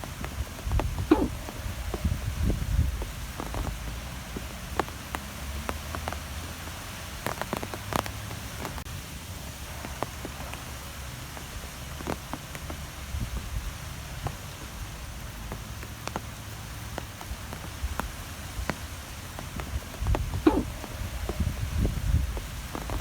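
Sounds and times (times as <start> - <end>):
wind rumbling: 0.0 - 23.0
light ticks and taps: 2.9 - 8.8, 11.3 - 21.5.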